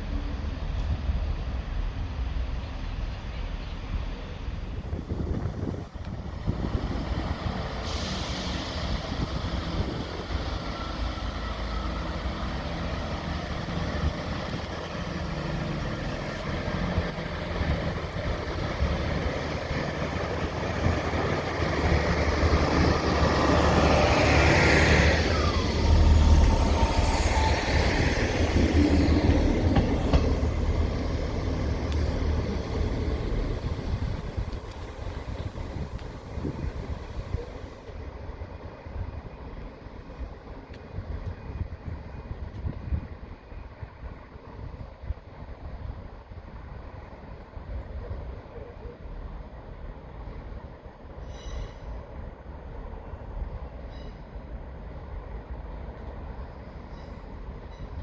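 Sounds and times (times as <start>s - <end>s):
train low rumble: 0.0s - 58.0s
hiss: 7.0s - 10.9s, 19.0s - 38.1s.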